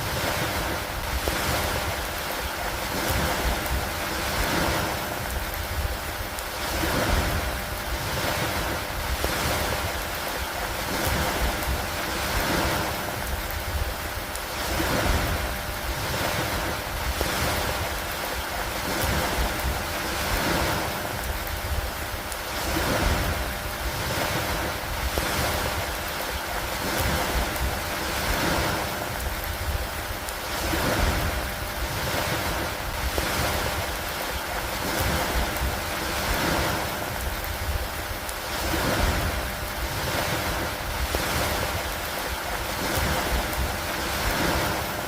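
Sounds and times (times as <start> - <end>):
rain hissing: 0.0 - 45.0
faint drip-like ticks: 1.0 - 40.4
gusty wind rumble: 26.6 - 45.0.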